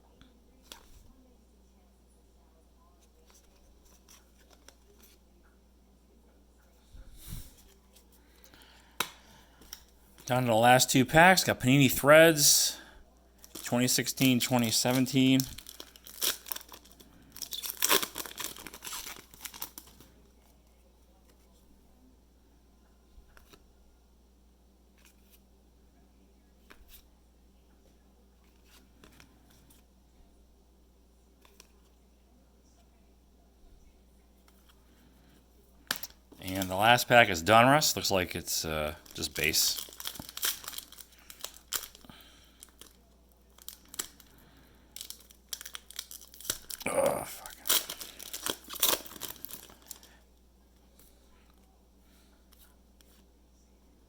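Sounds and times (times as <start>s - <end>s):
wrapper tearing and crinkling: 13.4s - 20.0s, 38.9s - 44.3s, 45.0s - 50.1s.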